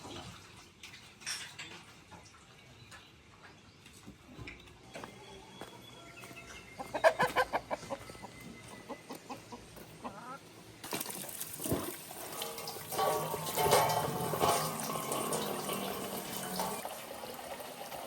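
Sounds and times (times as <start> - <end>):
chicken clucking: 4.9 - 10.6
water running: 10.8 - 18.0.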